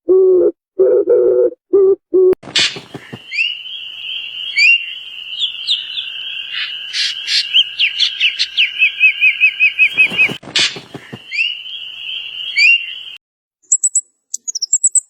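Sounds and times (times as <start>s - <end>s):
small birds calling: 2.6s - 13.2s
steady high-pitched tone: 3.5s - 10.4s.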